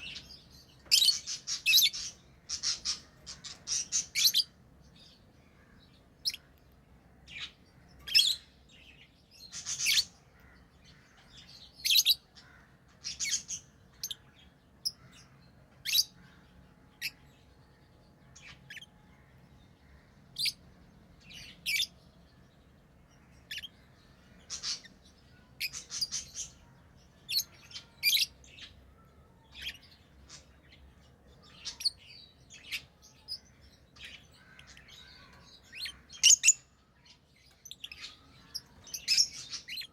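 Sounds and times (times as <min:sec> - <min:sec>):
lovebirds chirping: 0:00.0 - 0:39.9.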